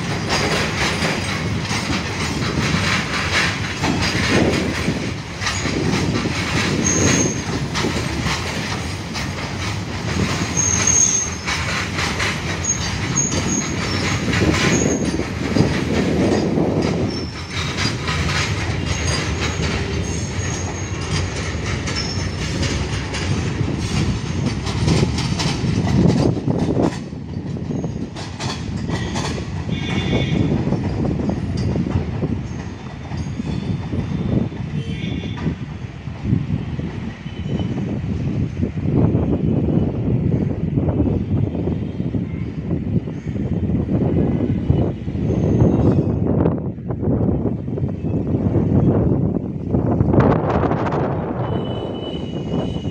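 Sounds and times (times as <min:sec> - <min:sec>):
clattering over rail joints: 0:00.0 - 0:34.8
train wagons rumbling on rails: 0:00.0 - 0:52.9
high wheel squeals: 0:06.7 - 0:07.5, 0:10.4 - 0:11.7, 0:12.6 - 0:15.7, 0:16.4 - 0:18.0, 0:18.7 - 0:21.2, 0:51.4 - 0:52.9.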